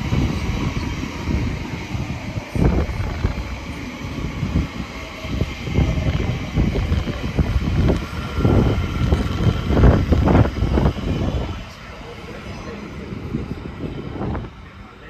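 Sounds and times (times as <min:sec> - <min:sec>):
electric train running on tracks: 0:00.0 - 0:15.0
wind buffeting microphone: 0:00.0 - 0:15.0.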